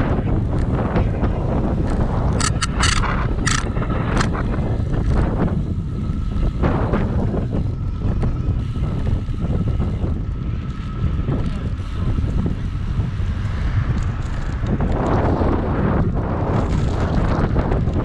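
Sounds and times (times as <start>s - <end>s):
bicycle rumbling along street: 0.0s - 18.0s
wind buffeting microphone: 0.0s - 18.0s
thin steady whine: 2.1s - 14.0s.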